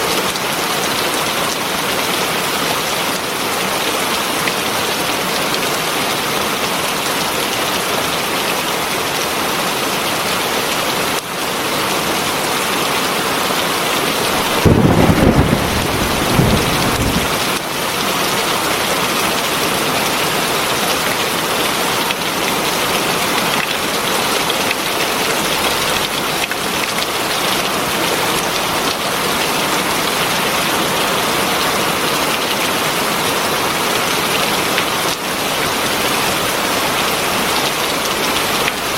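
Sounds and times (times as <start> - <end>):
heavy rain: 0.0 - 38.9
thunder rumbling: 14.3 - 17.6.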